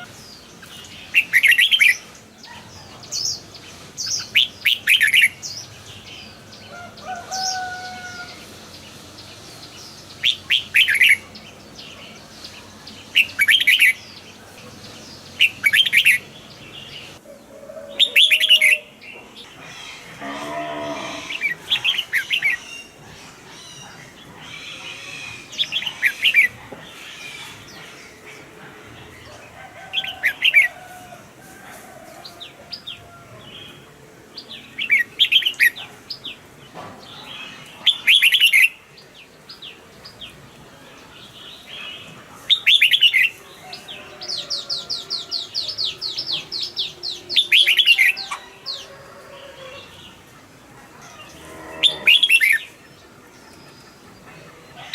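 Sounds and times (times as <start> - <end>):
bird singing warbling phrases: 9.7 - 17.2.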